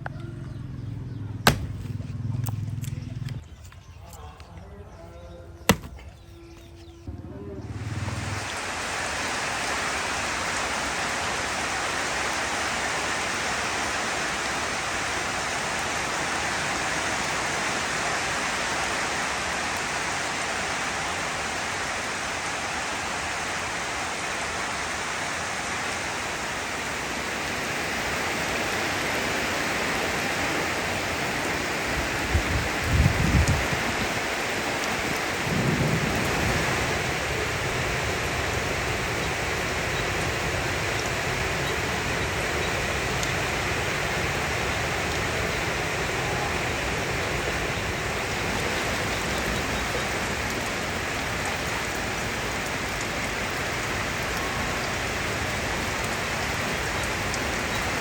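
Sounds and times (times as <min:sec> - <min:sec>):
low rumbles: 0:00.0 - 0:04.6
heavy rain falling: 0:07.6 - 0:58.0.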